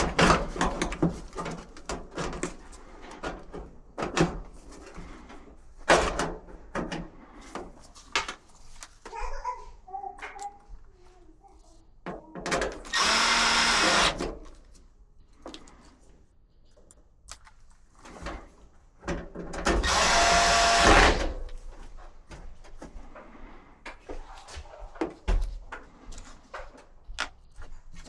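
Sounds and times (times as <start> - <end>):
handheld power tool running: 12.8 - 14.4, 19.7 - 21.4.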